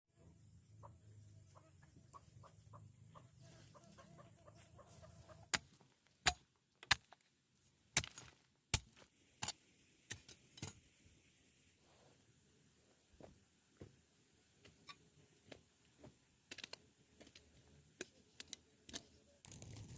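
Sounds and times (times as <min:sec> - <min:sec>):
chickens clucking: 0:00.8 - 0:05.5.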